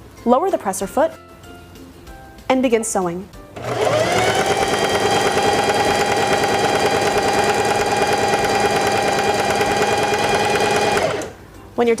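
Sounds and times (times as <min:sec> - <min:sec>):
sewing machine stitching: 0:03.6 - 0:11.4.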